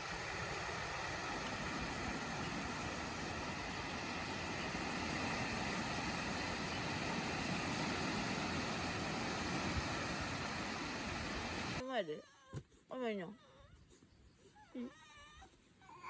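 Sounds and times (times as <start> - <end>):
sea waves washing on shore: 0.0 - 11.8.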